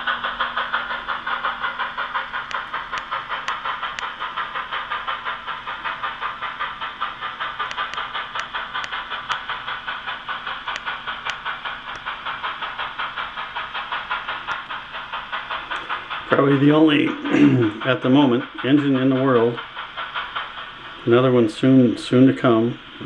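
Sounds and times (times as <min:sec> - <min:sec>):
model locomotive rhythmic pulsing: 0:00.0 - 0:23.0
sharp clicks: 0:00.7 - 0:16.2.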